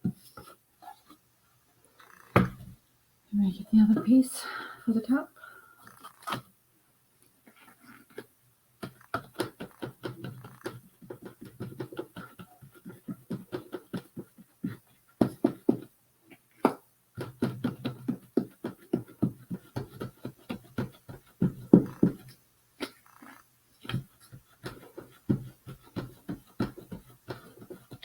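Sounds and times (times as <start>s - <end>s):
quick irregular taps and clicks: 8.2s - 15.9s, 16.6s - 28.0s.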